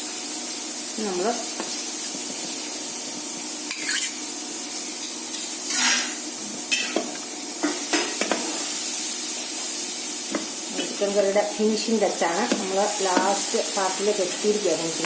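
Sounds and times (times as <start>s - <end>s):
curry sizzling in a pan: 0.0s - 15.0s
spoon scraping a pan: 3.7s - 4.2s, 5.0s - 8.8s.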